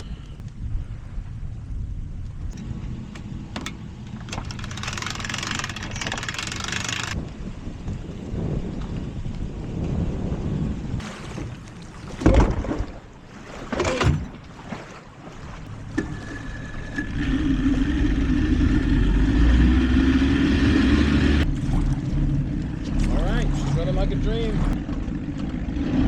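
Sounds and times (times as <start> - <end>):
outboard motor running: 2.3 - 7.2, 11.0 - 26.0
starter pull strokes: 4.2 - 7.2.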